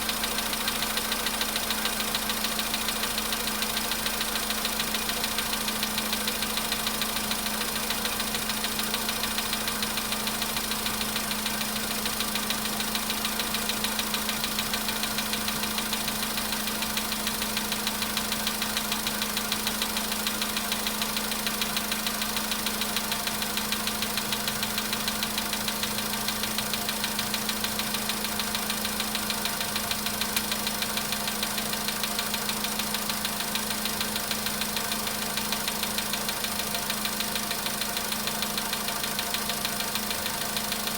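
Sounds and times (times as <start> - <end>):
car engine idling with metallic knock: 0.0 - 40.9.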